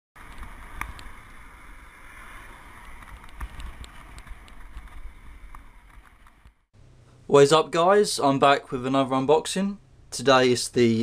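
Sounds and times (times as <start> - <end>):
wind noise on microphone: 0.2 - 6.5.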